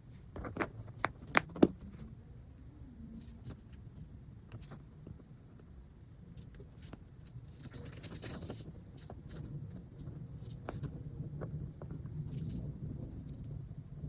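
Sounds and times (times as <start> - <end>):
low steady hum: 0.0 - 14.0
small parts clicking and scratching: 3.2 - 5.3, 6.3 - 14.0.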